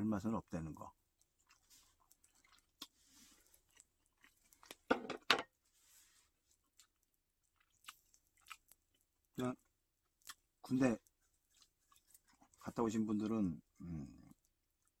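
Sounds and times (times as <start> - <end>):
person chewing meat: 1.0 - 4.9, 6.5 - 12.8, 13.6 - 15.0.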